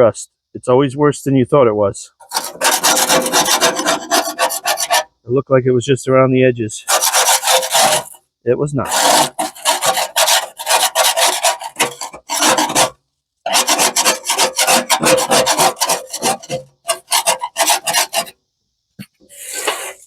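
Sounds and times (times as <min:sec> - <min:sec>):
hand scrubbing rusted steel: 0:02.2 - 0:05.1, 0:06.8 - 0:08.2, 0:08.8 - 0:18.4, 0:19.0 - 0:20.0.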